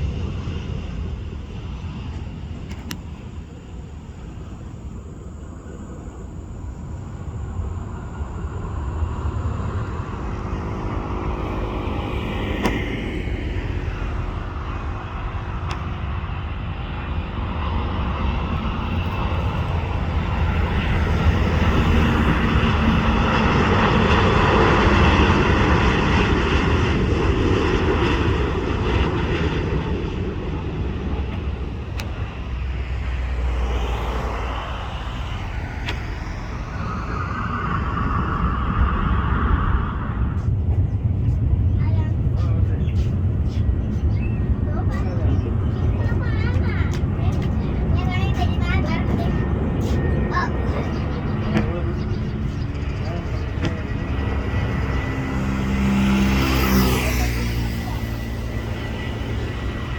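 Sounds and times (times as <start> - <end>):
steady low rumble: 0.0 - 56.3
jet engines passing: 0.0 - 59.9.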